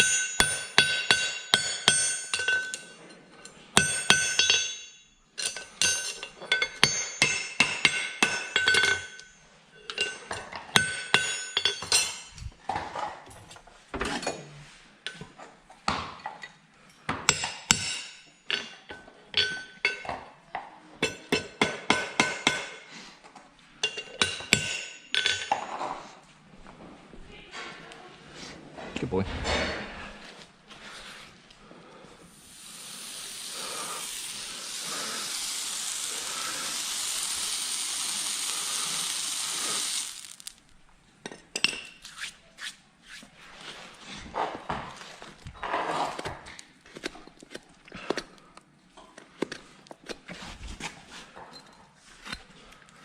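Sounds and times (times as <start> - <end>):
hammer striking metal ringing: 0.0 - 2.9, 3.8 - 9.3.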